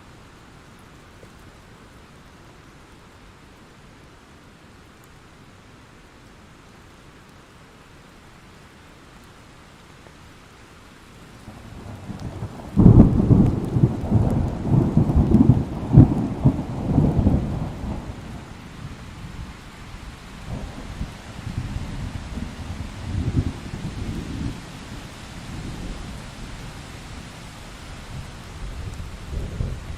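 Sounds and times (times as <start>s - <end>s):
rain hiss: 0.0s - 29.9s
thunder crackling and rolling: 11.4s - 29.9s.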